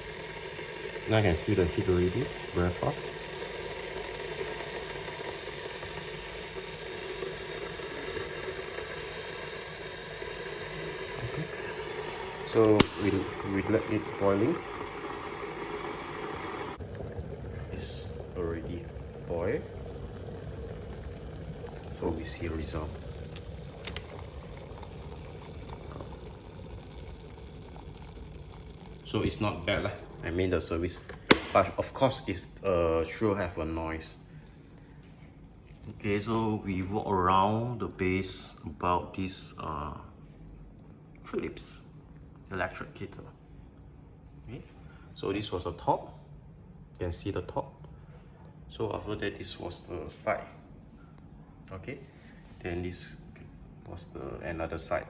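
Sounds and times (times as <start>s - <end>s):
electric kettle boiling water: 0.0s - 34.1s, 36.0s - 40.0s, 54.2s - 55.0s
kettle click: 12.6s - 13.6s, 31.1s - 31.8s.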